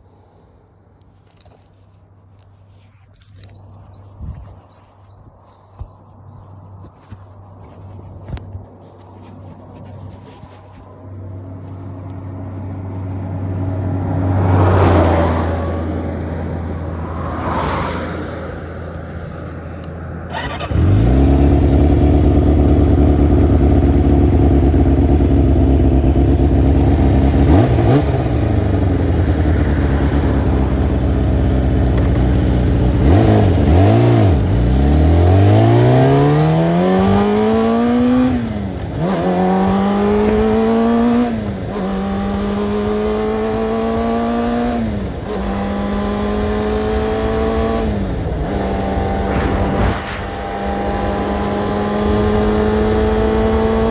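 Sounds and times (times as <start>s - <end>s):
motorcycle engine idling and accelerating: 0.0s - 53.9s
passing whooshes: 12.2s - 20.1s, 47.3s - 53.9s.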